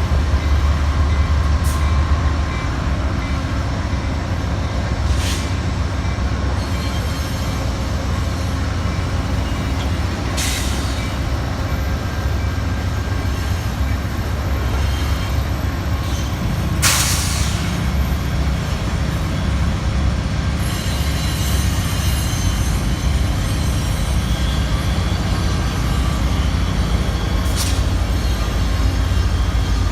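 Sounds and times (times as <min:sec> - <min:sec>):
train wheels rumbling: 0:00.0 - 0:29.9
brake and wheel squeal: 0:05.0 - 0:16.4, 0:20.6 - 0:29.9
brake air hisses: 0:16.8 - 0:17.7.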